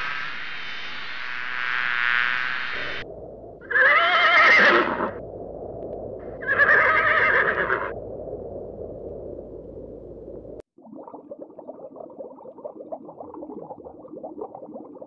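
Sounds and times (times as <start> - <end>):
horse whinnying: 3.6 - 5.2, 6.4 - 7.9.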